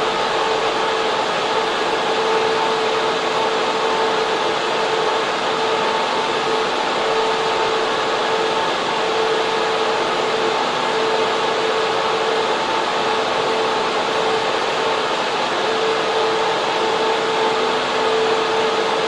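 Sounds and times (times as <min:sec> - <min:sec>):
server fans rushing air: 0:00.0 - 0:19.0.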